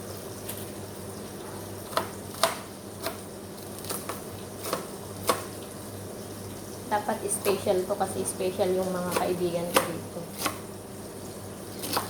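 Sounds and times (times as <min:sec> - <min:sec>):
knife chopping cabbage on board: 0:01.8 - 0:05.6, 0:09.0 - 0:10.7, 0:11.8 - 0:12.0.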